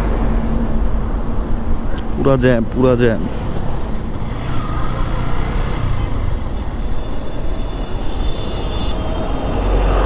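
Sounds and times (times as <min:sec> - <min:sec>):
traffic low rumble: 0:00.0 - 0:10.0
motorcycle engine: 0:02.6 - 0:10.0.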